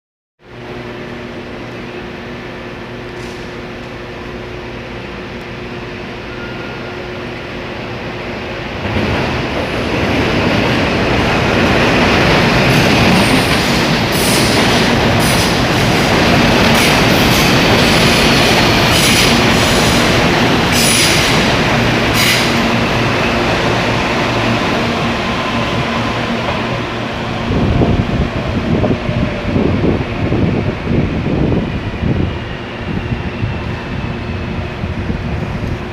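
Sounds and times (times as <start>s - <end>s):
electric train rumbling: 0.4s - 35.9s
wheels squealing and clacking on rail: 12.0s - 24.1s.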